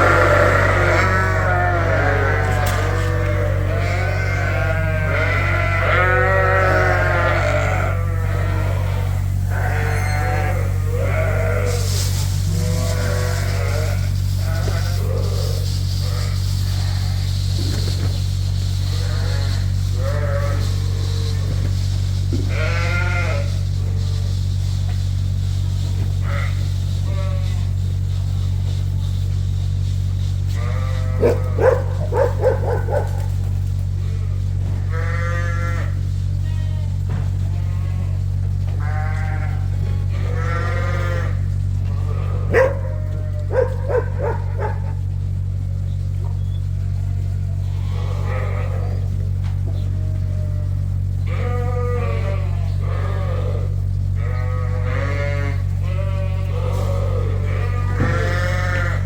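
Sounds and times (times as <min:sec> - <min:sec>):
sheep bleating: 0:00.0 - 0:17.3, 0:18.9 - 0:21.6, 0:22.3 - 0:23.6, 0:26.2 - 0:27.8, 0:30.5 - 0:45.3, 0:46.4 - 0:59.0
steady low hum: 0:00.0 - 0:59.0.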